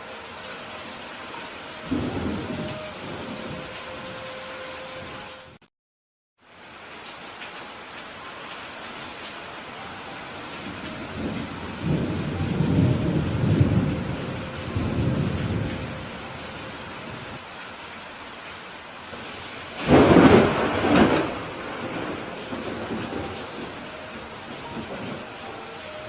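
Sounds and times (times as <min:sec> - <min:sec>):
steady rain falling: 0:00.0 - 0:05.6, 0:06.4 - 0:26.0
thunder rumbling: 0:01.8 - 0:04.2, 0:10.6 - 0:17.4, 0:19.1 - 0:26.0.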